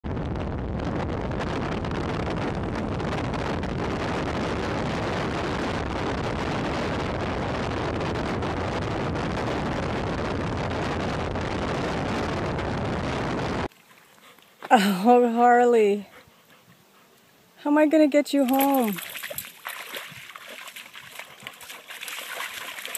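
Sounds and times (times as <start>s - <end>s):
wind buffeting microphone: 0.1s - 13.7s, 18.3s - 22.9s.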